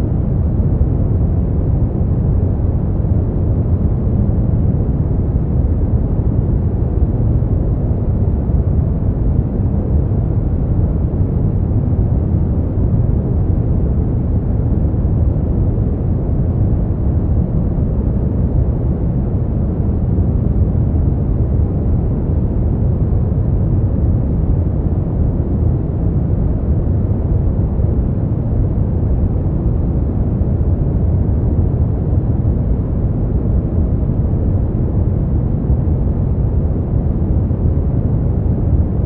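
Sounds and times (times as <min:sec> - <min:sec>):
deep white noise: 0:00.0 - 0:39.0.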